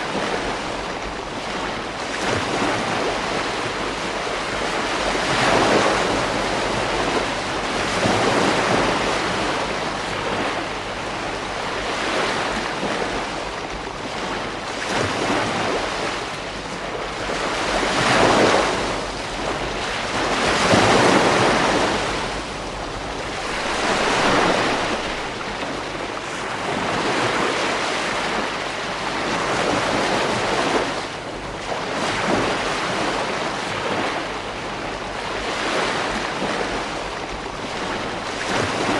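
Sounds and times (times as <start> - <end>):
ocean surf breaking on a beach: 0.0 - 38.9.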